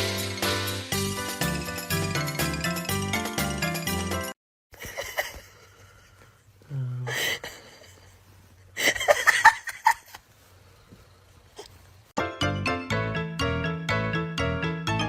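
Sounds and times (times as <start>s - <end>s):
person laughing: 4.8s - 6.2s, 7.0s - 10.2s.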